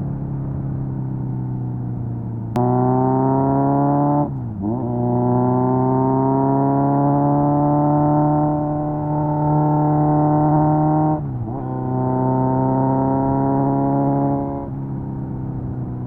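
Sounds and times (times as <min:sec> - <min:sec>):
motorcycle engine revving: 0:02.5 - 0:16.0.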